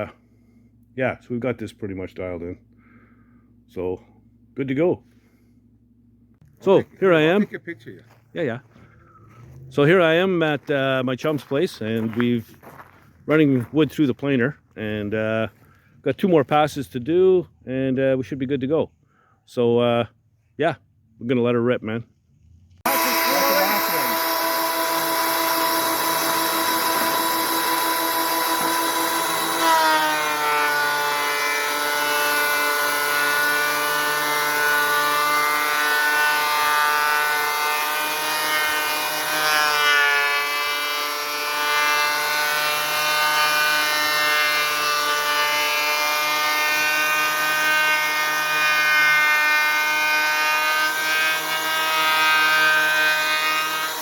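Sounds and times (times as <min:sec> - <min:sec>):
thickness planer whining: 0:22.8 - 0:54.0.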